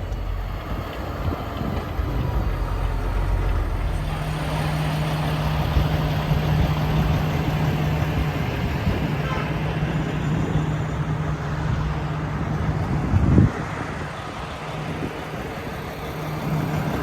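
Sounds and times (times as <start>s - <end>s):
steady low hum: 0.0s - 17.0s
truck engine and road noise: 0.0s - 17.0s.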